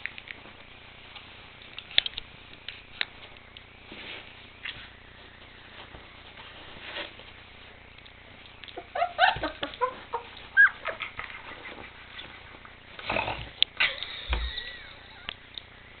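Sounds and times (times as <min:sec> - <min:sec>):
puppies yipping and barking: 0:08.7 - 0:12.8.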